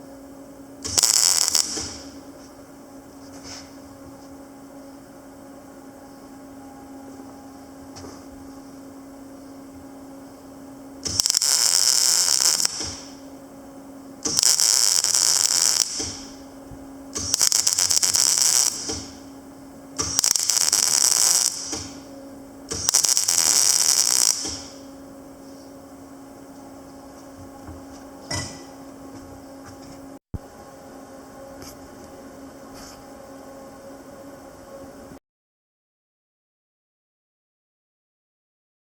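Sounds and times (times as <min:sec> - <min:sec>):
steady low hum: 0:00.0 - 0:35.2
welder arc crackling sizzle: 0:00.8 - 0:02.4, 0:09.8 - 0:25.0.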